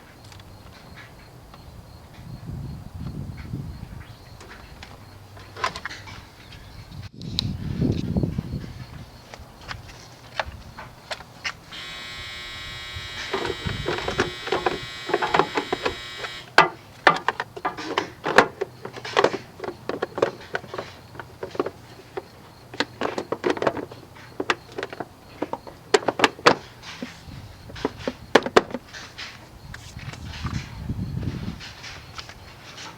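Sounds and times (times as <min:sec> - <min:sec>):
small electric motor whirring: 0:11.7 - 0:16.5
sharp clicks and knocks: 0:11.8 - 0:23.8.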